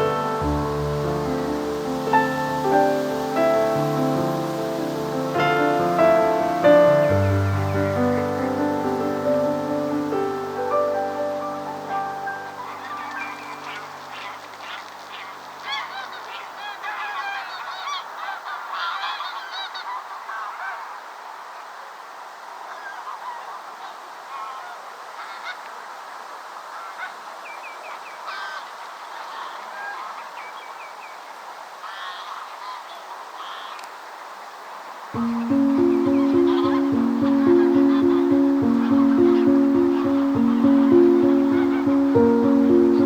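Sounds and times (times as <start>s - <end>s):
waterbirds calling: 0.0s - 20.6s, 35.2s - 43.0s.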